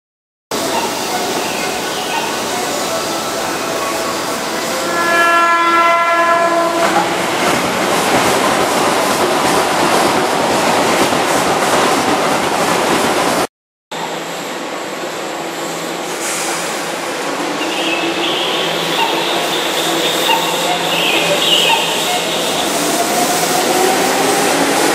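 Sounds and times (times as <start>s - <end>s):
low steady train hum: 0.5s - 24.9s
train wheel and track noise: 0.5s - 24.9s
train horn: 2.0s - 7.5s, 17.6s - 22.8s.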